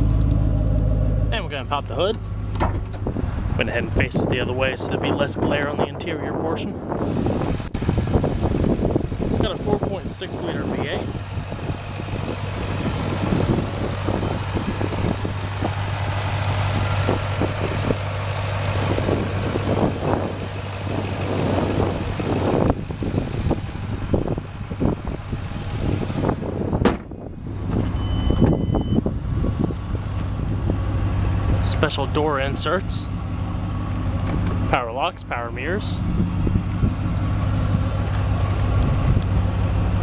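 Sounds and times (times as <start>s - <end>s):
car engine idling: 0.0s - 40.0s
wind buffeting microphone: 2.8s - 15.8s, 18.8s - 31.6s, 36.0s - 37.9s, 38.7s - 39.5s
high-pitched beep: 28.0s - 29.0s.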